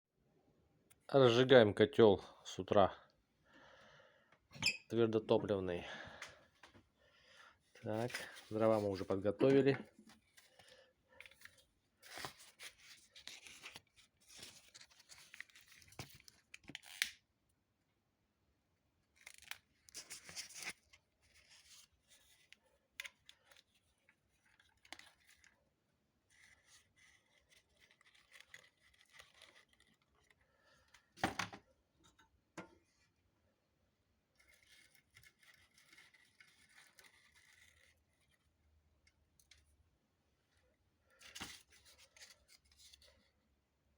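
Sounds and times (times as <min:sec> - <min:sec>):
paper rustling and crinkling: 0:07.7 - 0:17.1, 0:19.2 - 0:25.6, 0:26.2 - 0:30.4, 0:34.4 - 0:38.6, 0:41.1 - 0:43.3.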